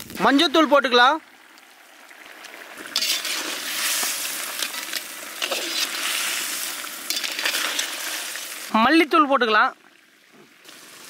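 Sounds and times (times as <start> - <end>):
crabs sizzling in oil: 0.0 - 8.8, 10.6 - 11.0
ladle scraping pan: 2.8 - 8.4.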